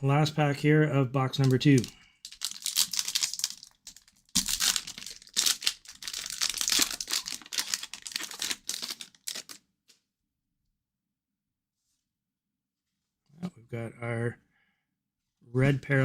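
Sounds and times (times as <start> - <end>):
wrapper tearing and crinkling: 1.4 - 9.6.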